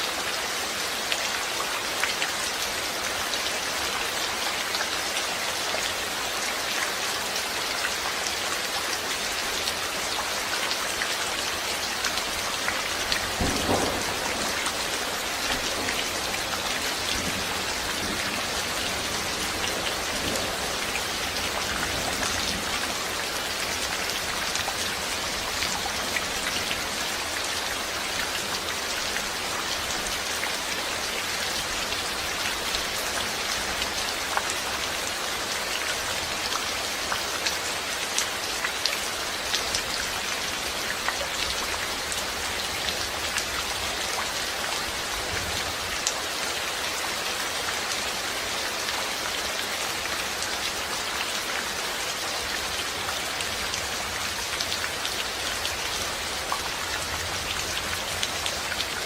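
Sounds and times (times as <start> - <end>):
rain pattering on surfaces: 0.0 - 59.0
thunder rumble: 13.4 - 18.5.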